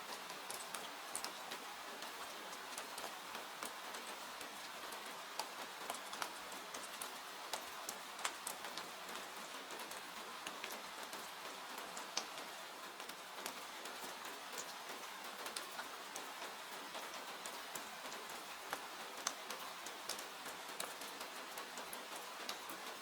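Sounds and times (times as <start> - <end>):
rain hiss: 0.0 - 23.0.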